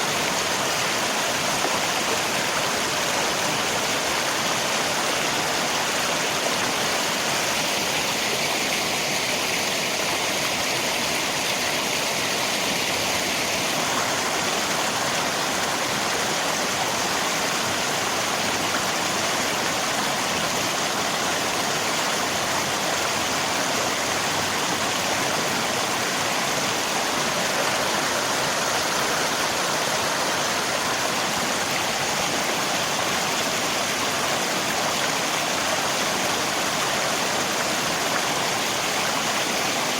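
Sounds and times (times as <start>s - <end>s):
flowing river water: 0.0s - 39.9s
rain: 0.0s - 39.9s.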